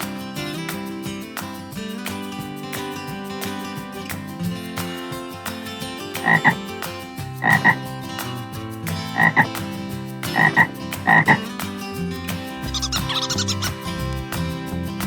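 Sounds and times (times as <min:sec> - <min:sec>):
guitar music: 0:00.0 - 0:15.0
frog croaking: 0:06.2 - 0:06.6, 0:07.4 - 0:07.8, 0:09.2 - 0:09.5, 0:10.3 - 0:11.4, 0:12.7 - 0:13.8.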